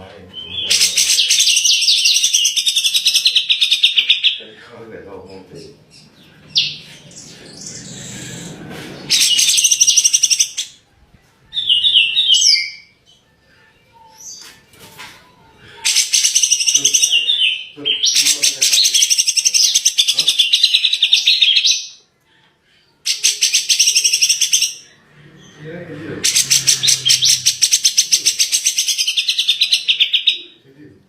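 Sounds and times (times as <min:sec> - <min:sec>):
bird singing fast high notes: 0:26.2 - 0:29.7.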